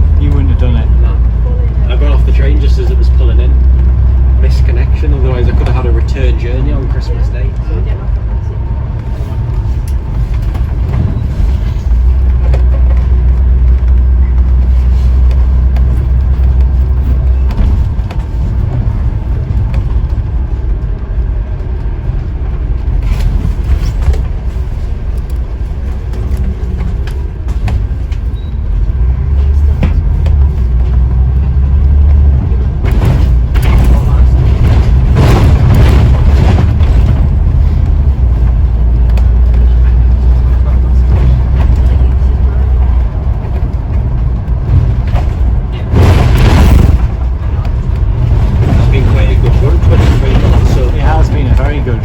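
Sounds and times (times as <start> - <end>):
bus diesel engine: 0.0 - 52.0
road rumble: 0.0 - 52.0.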